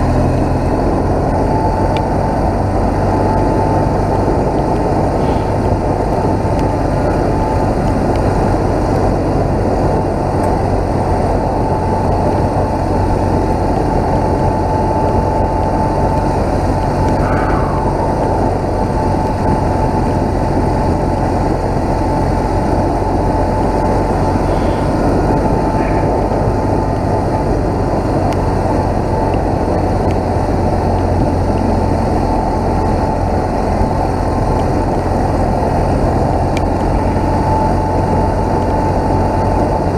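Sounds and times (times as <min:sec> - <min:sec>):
motorcycle engine running: 0:00.0 - 0:39.9
wind noise: 0:00.0 - 0:39.9.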